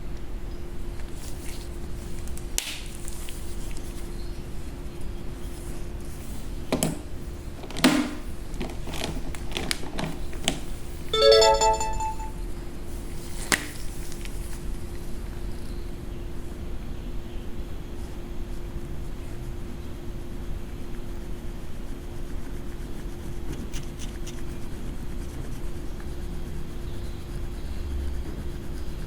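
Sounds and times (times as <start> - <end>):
short electronic jingle: 11.2 - 12.4.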